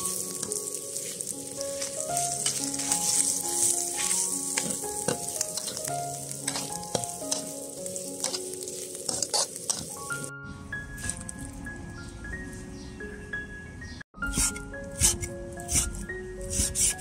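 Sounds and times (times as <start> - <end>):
food sizzling in a wok: 0.0 - 10.3
metal spatula scraping pan: 1.8 - 7.6, 8.2 - 10.0.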